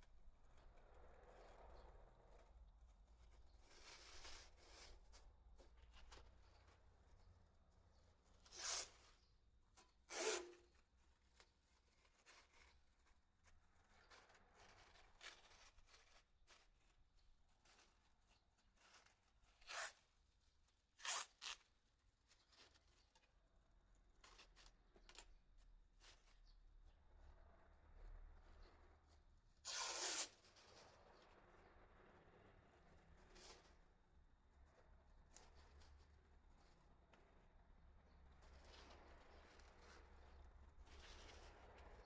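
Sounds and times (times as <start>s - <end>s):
faint rubbing of tape: 0.0s - 31.6s, 32.9s - 34.0s, 34.6s - 42.0s
masking tape ripping off roll: 21.0s - 21.7s, 29.7s - 30.4s.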